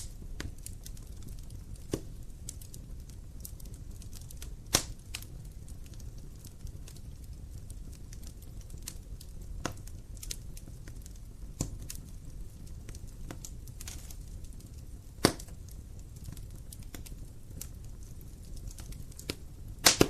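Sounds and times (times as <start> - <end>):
fire rumbling in fireplace: 0.0 - 20.0
logs crackling: 0.0 - 20.0
log popping: 1.7 - 2.2, 4.7 - 5.0, 15.2 - 15.6, 18.7 - 20.0.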